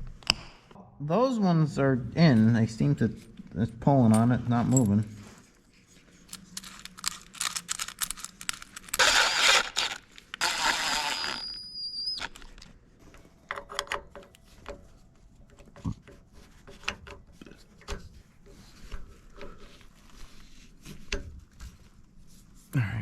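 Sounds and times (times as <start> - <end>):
small clicks and scrapes: 5.8 - 14.9, 15.5 - 22.1
loud tearing squealing noise: 8.9 - 12.7.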